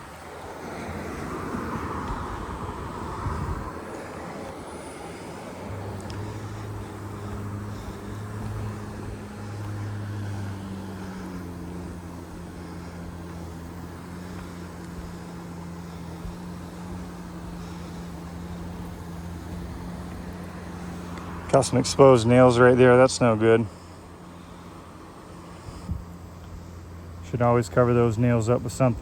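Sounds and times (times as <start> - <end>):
wind rumble on microphone: 0.0 - 10.5, 25.7 - 26.1
engine humming: 0.0 - 29.0.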